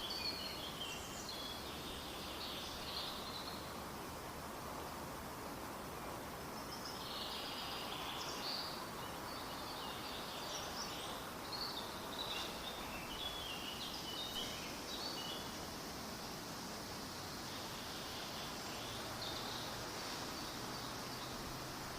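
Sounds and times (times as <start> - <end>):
steady background hiss: 0.0 - 21.9
birds chirping: 6.5 - 15.6, 17.2 - 21.9.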